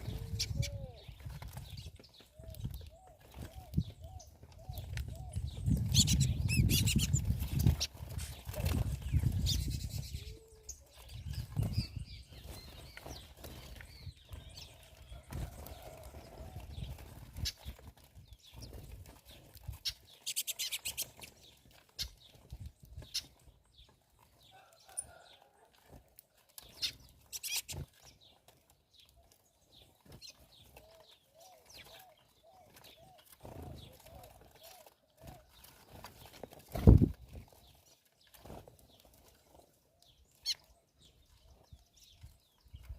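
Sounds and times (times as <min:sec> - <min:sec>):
bird calls: 0:00.0 - 0:17.8, 0:19.7 - 0:22.4, 0:26.6 - 0:28.4, 0:29.0 - 0:37.8
bird wings fluttering: 0:06.0 - 0:09.9, 0:32.7 - 0:37.7.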